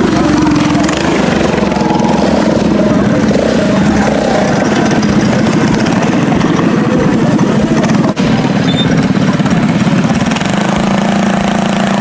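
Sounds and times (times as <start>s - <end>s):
mini-bike engines running: 0.0s - 12.0s.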